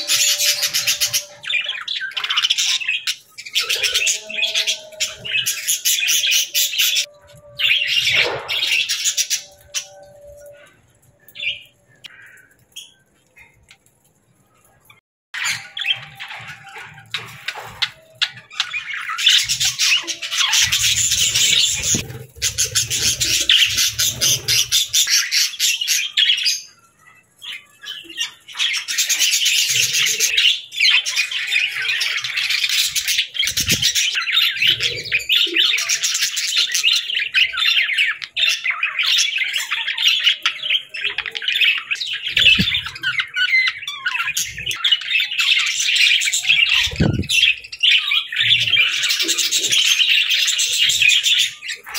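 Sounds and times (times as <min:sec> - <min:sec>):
budgerigars chattering and chirping: 0:00.0 - 0:09.9, 0:15.4 - 0:26.5, 0:27.9 - 0:51.9.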